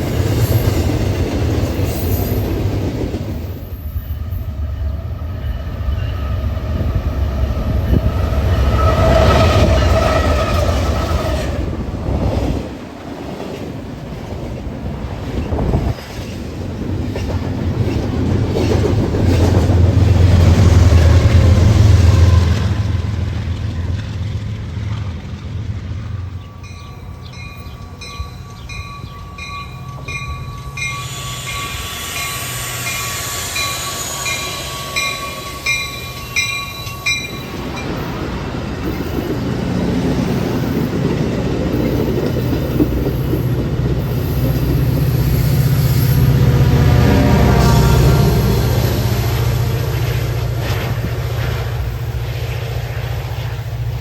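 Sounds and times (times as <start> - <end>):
train rumbling past: 0.0 - 54.0
grade-crossing bell ringing: 3.6 - 10.4, 26.1 - 39.5.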